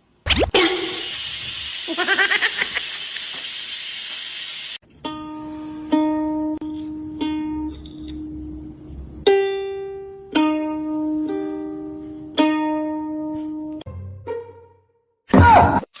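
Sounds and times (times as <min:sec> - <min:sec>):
plucked string notes: 0:04.8 - 0:14.8.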